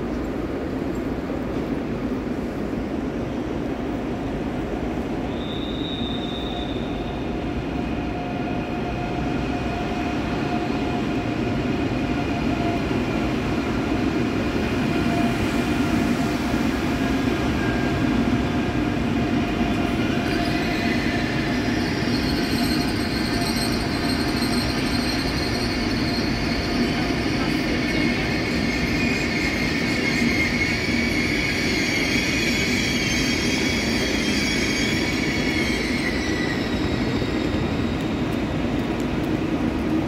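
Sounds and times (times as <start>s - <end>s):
train rolling rumble: 0.0s - 40.0s
high-pitched brake squeal: 5.2s - 7.4s, 20.0s - 38.2s.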